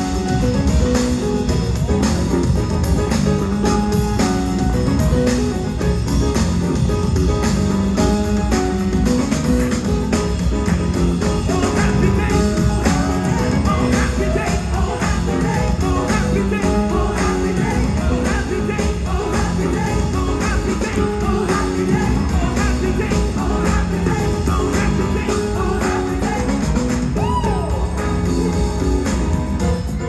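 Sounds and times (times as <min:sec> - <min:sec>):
band with steady beat: 0:00.0 - 0:30.0
gospel singers: 0:10.6 - 0:29.6.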